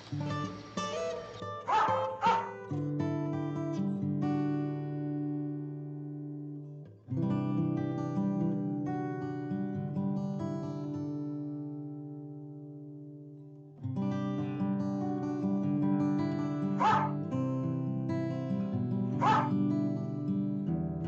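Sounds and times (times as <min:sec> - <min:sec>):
acoustic guitar music: 0:00.0 - 0:21.0
dog bark: 0:01.0 - 0:02.7, 0:16.8 - 0:17.2, 0:19.2 - 0:19.6.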